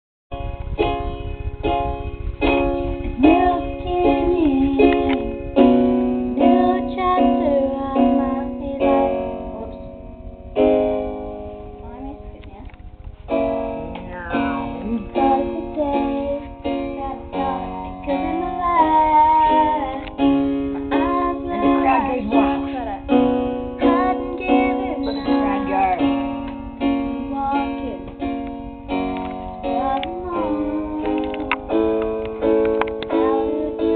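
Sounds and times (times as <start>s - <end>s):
plucked string instrument chords: 2.0s - 33.9s
woman singing: 3.2s - 5.4s, 6.4s - 9.8s, 14.3s - 23.2s, 23.8s - 26.3s, 27.0s - 28.2s, 29.2s - 31.7s, 33.0s - 33.9s.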